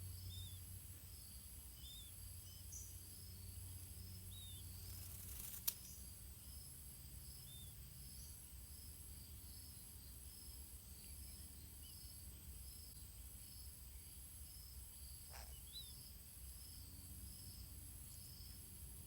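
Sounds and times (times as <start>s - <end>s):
insect drone: 0.0s - 19.0s
bird chirps: 1.2s - 3.5s.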